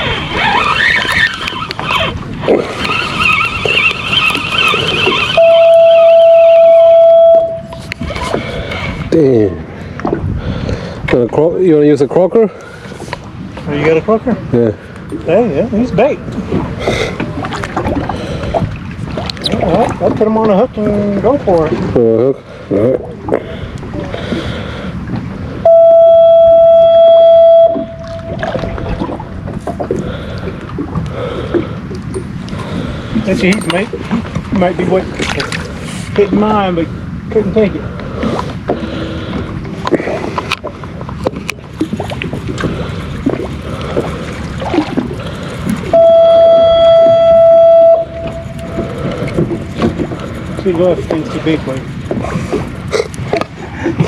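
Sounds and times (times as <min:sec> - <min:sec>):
boat background noise: 0:00.0 - 0:54.0
wind and water noise: 0:00.0 - 0:54.0
loud single-pitched tone: 0:03.7 - 0:07.8, 0:25.6 - 0:28.8, 0:45.9 - 0:49.8.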